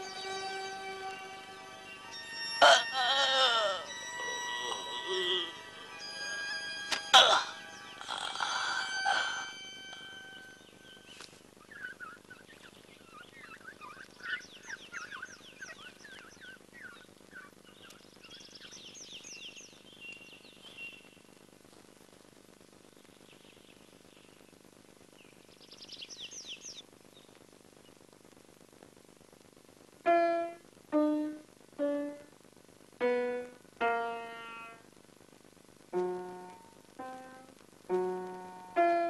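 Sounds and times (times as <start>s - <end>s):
faint songbirds chirping: 0.0s - 28.6s.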